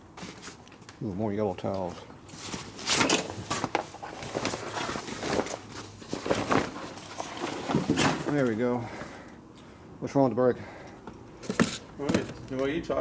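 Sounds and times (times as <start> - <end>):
objects being handled and set down: 2.3 - 9.2, 11.1 - 12.7.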